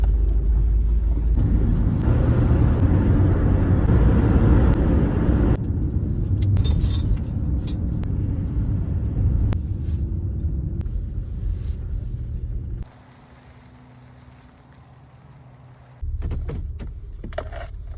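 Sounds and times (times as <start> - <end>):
vehicle engine and road rumble: 0.0 - 17.9.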